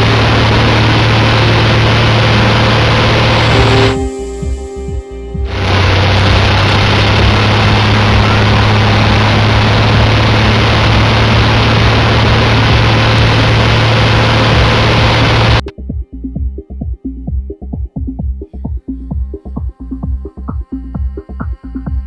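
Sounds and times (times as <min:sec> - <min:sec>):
aircraft engine rushing drone: 0:00.0 - 0:15.7.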